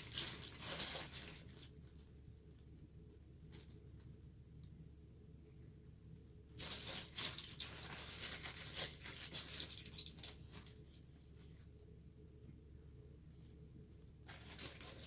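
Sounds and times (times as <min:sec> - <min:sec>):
rustling handling noises: 0:00.0 - 0:04.2, 0:06.5 - 0:11.9, 0:13.2 - 0:15.0.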